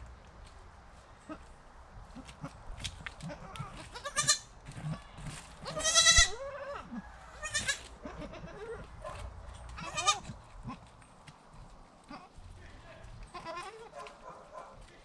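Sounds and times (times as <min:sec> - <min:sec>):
goats bleating: 0:03.2 - 0:05.0, 0:05.6 - 0:08.9, 0:09.7 - 0:10.9, 0:13.3 - 0:14.0.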